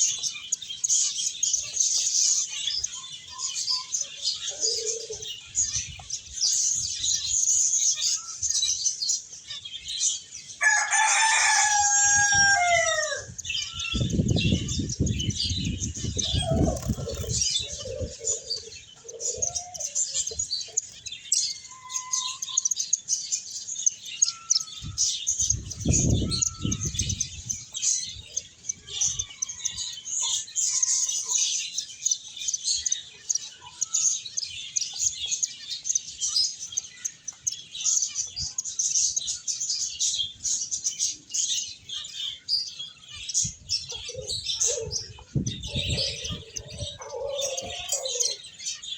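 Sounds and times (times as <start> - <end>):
finches chirping: 0.0 - 11.8, 12.4 - 48.9
rooster crowing: 10.6 - 13.4.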